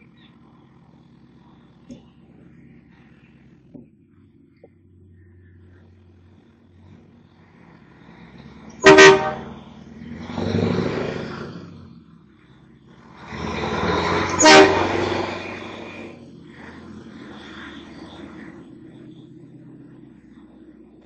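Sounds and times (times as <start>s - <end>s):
vehicle noise: 0.0s - 21.0s
short horn toots: 8.8s - 9.6s, 14.2s - 15.5s.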